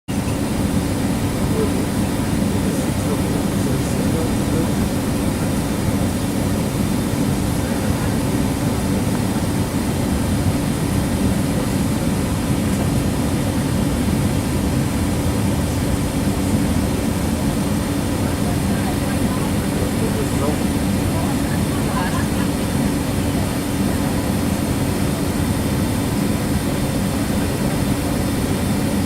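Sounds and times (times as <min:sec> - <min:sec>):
faint high engine whine: 0:00.1 - 0:29.0
jet engines rumbling: 0:00.1 - 0:29.0.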